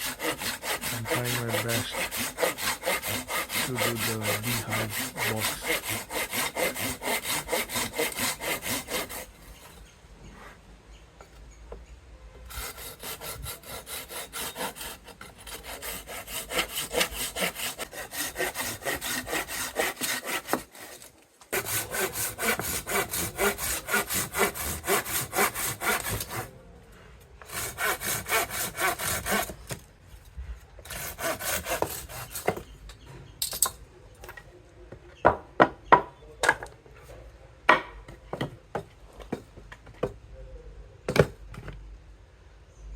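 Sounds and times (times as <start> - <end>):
hand saw cutting wood: 0.0 - 9.8, 12.5 - 26.5, 27.4 - 29.8, 30.8 - 32.7.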